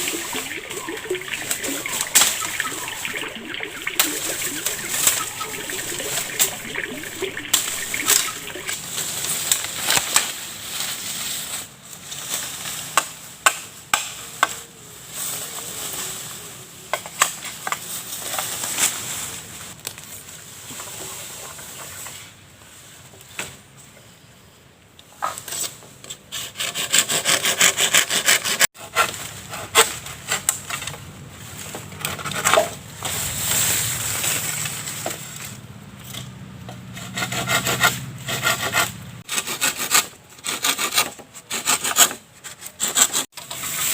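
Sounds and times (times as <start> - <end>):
water splashing and sloshing: 0.0 - 9.0, 31.6 - 36.3.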